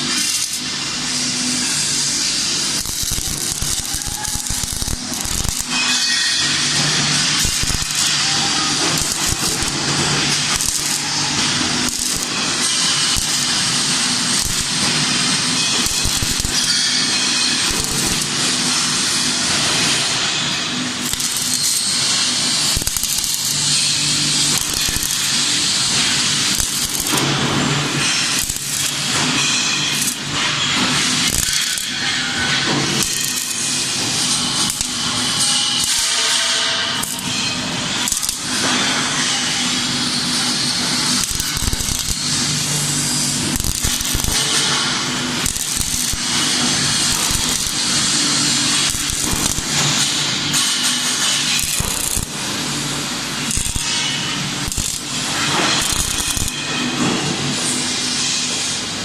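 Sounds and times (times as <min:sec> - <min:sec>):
welding arc crackling: 0:00.0 - 0:58.2.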